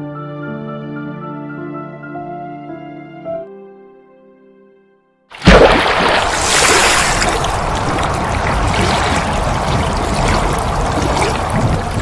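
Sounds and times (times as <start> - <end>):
strong wind rushing: 5.6 - 12.0
wind buffeting microphone: 6.4 - 12.0.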